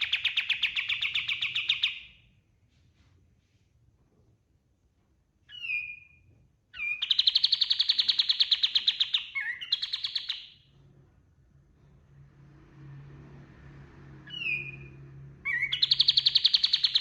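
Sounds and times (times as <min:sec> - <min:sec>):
bulbul singing trill: 0:15.5 - 0:17.0.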